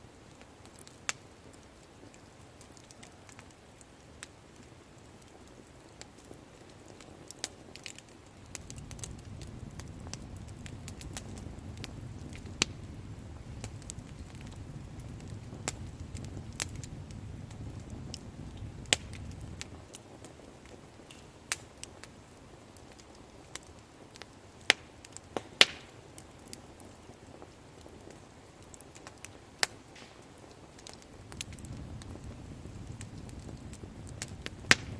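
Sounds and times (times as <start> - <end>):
sharp pops from fire: 0.0 - 34.9
wood fire crackling: 0.0 - 34.9
low rumble: 8.5 - 19.6.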